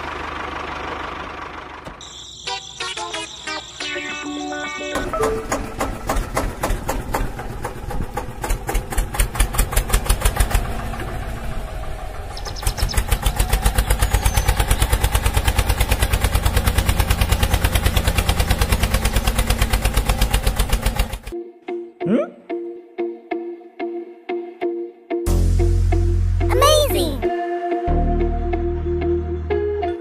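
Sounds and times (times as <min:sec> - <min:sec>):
tractor engine chugging: 0:00.0 - 0:02.8, 0:04.8 - 0:21.4.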